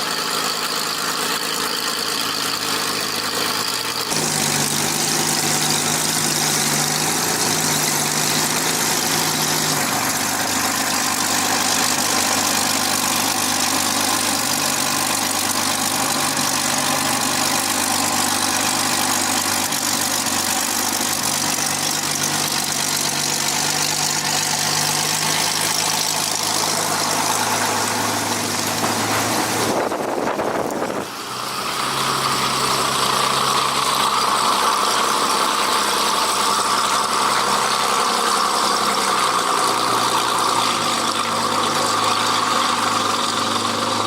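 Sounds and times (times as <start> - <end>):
piston aero engine running: 0.0 - 44.0.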